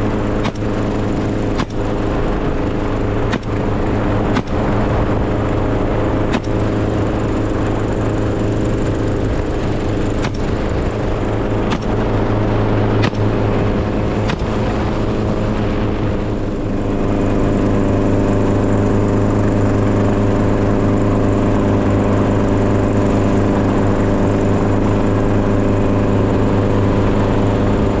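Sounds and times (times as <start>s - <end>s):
engine running steadily: 0.0s - 28.0s
sharp knocks: 1.6s - 1.8s, 3.3s - 3.6s, 14.2s - 14.7s.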